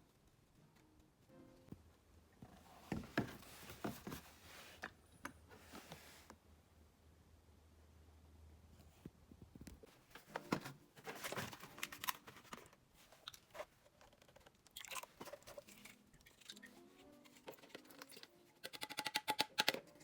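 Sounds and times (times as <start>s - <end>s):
clicks and knocks of handling: 17.3s - 20.0s.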